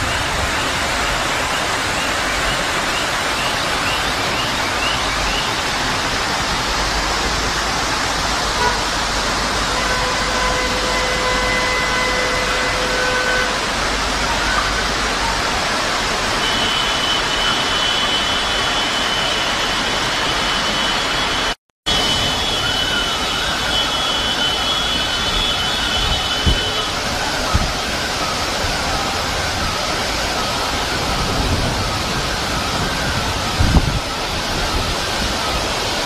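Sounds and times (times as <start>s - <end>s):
rushing floodwater: 0.0s - 36.0s
torrential rain: 0.0s - 36.0s
vehicle horn: 8.5s - 14.2s, 16.3s - 19.2s, 20.6s - 27.0s.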